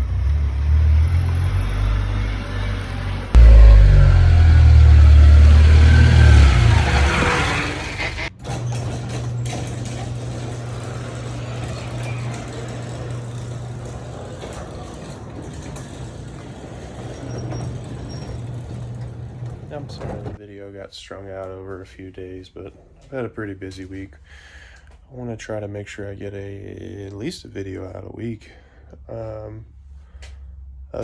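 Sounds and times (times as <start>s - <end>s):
loud low vehicle rumble with hiss: 0.0s - 8.3s, 10.0s - 15.2s
vehicle engine humming: 0.0s - 8.3s.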